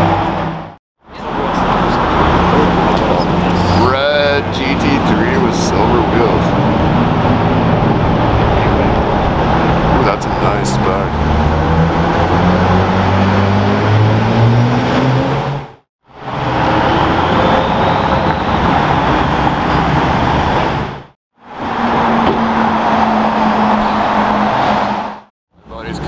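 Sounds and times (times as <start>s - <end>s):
sports car engine accelerating: 0.0s - 20.9s
sports car pulling away: 1.2s - 21.0s.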